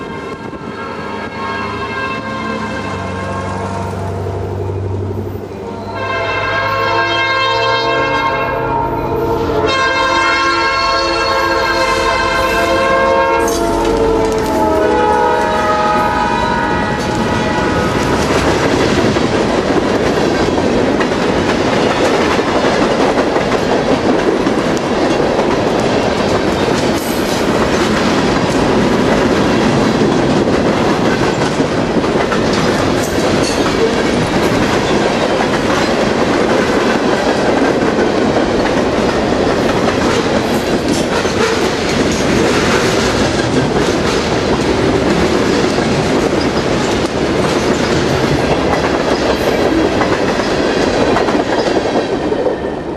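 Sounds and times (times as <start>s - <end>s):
train air horn: 0.0s - 4.6s, 5.6s - 18.3s
train wheels clacking on rails: 11.7s - 52.9s.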